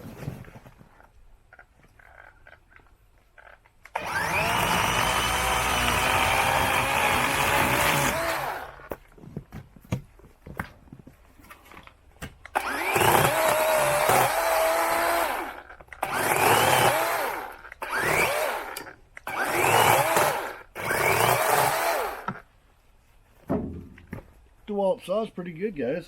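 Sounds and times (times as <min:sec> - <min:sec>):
power saw cutting branch: 0:03.4 - 0:08.9, 0:12.5 - 0:22.5.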